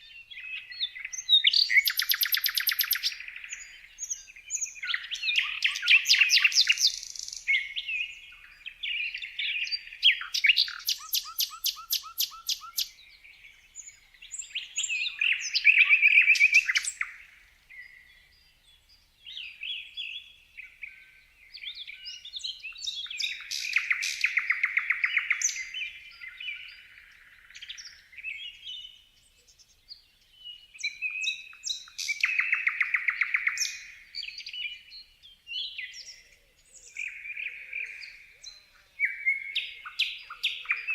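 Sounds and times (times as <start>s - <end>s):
songbirds chirping and singing: 0.0s - 40.9s
fast bird trills: 1.4s - 3.3s, 10.2s - 12.9s.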